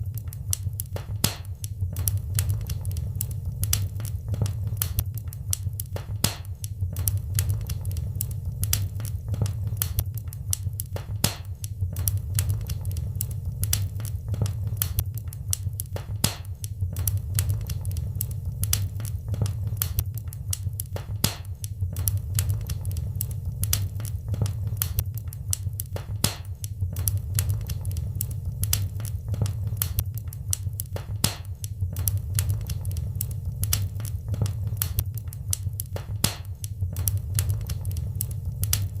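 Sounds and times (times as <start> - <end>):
wood fire crackling: 0.0 - 39.0
low rumble: 16.9 - 20.0, 26.9 - 30.6.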